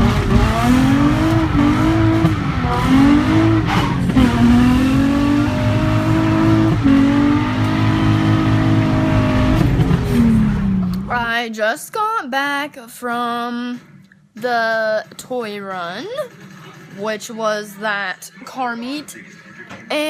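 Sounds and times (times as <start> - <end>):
car engine revving: 0.0 - 11.3.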